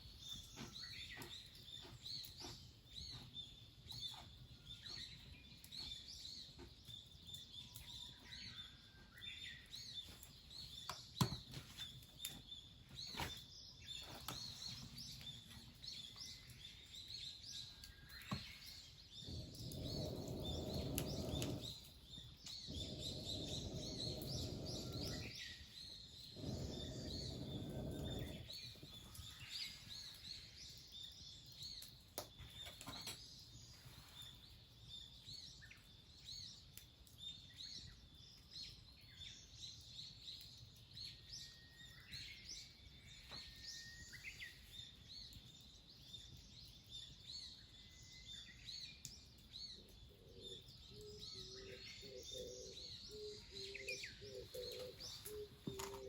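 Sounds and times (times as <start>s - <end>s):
small birds chirping: 0.0s - 56.0s
low rushes of noise: 19.3s - 21.9s, 22.5s - 25.6s, 26.2s - 29.0s
dove cooing: 52.0s - 56.0s.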